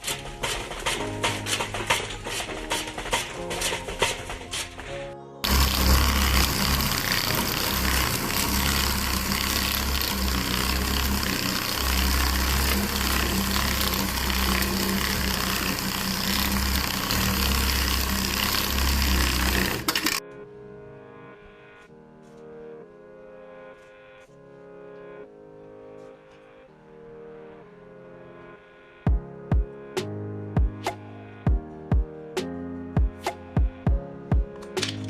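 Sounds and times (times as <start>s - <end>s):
loud steady machine noise: 0.0s - 20.2s.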